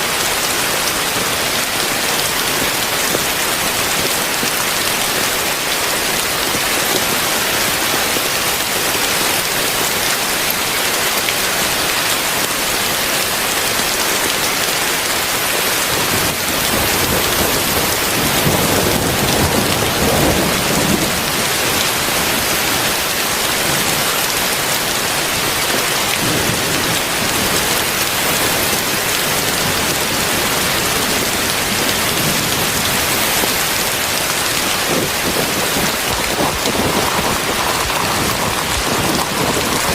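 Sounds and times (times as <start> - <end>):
heavy rain falling: 0.0 - 39.9
thunder rumbling: 15.8 - 39.9.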